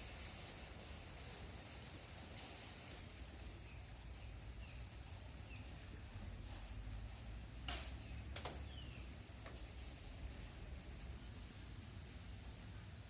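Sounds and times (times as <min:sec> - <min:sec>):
small birds chirping: 0:00.0 - 0:11.8
sharp clicks: 0:07.7 - 0:08.6.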